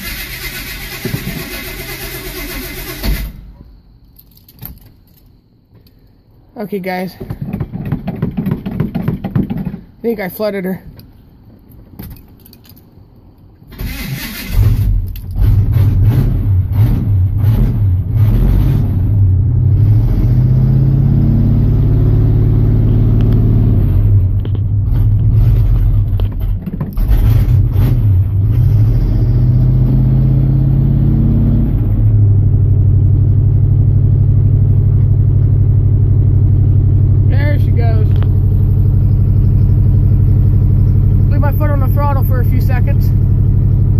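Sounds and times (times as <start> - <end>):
pickup engine cranking and catching: 0.0 - 6.0, 11.7 - 19.1, 22.9 - 29.8
engine running rough and revving: 13.8 - 43.9.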